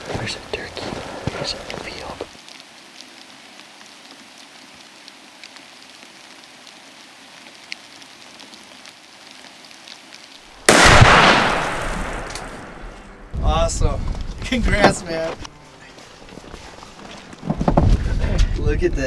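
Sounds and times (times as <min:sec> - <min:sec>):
rain falling: 0:00.0 - 0:15.6
shotgun blast with echo: 0:10.7 - 0:13.4.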